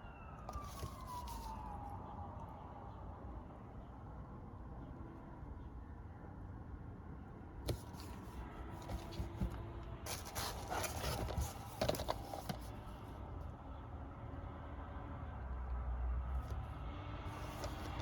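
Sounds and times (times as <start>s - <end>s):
plastic cases clicking: 8.8s - 12.8s, 17.4s - 18.0s
packaging crinkling rustle: 10.1s - 12.8s.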